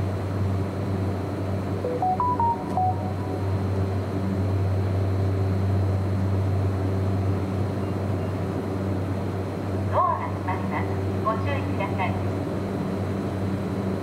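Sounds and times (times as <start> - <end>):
train carriage drone: 0.1 - 14.0
electronic chime: 1.8 - 3.7.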